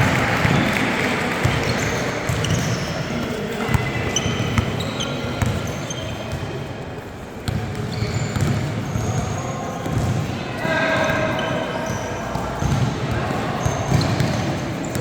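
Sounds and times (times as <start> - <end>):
sneakers squeaking: 0.0 - 15.0
basketball bouncing on court floor: 1.4 - 6.4, 7.4 - 10.3, 11.0 - 15.0.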